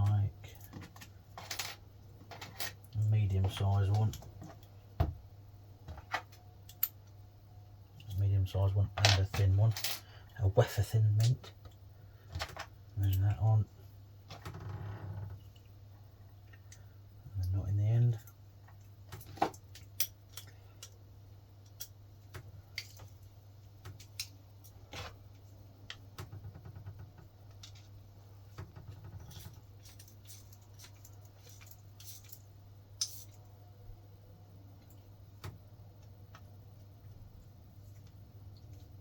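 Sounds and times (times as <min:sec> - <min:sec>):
small metal parts clinking: 0:00.6 - 0:02.9, 0:29.2 - 0:33.5.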